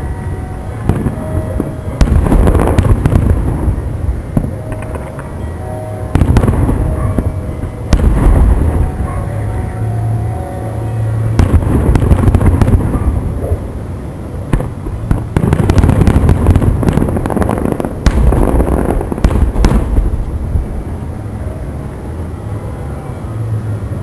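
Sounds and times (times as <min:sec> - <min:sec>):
fireworks bursting and crackling: 0:00.8 - 0:05.4, 0:06.0 - 0:09.1, 0:11.3 - 0:20.9
sharp firework bangs: 0:00.9 - 0:05.3, 0:06.1 - 0:09.0, 0:11.4 - 0:13.6, 0:14.5 - 0:20.3.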